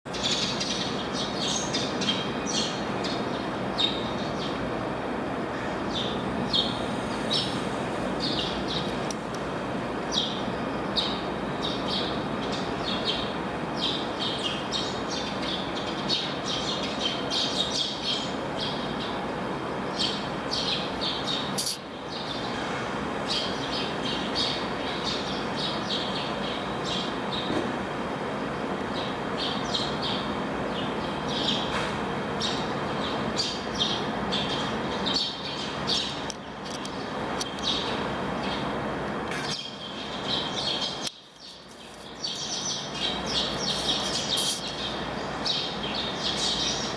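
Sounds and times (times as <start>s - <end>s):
small birds chirping: 0.1s - 4.8s, 5.5s - 9.4s, 10.0s - 27.6s, 28.2s - 38.7s, 39.3s - 46.9s.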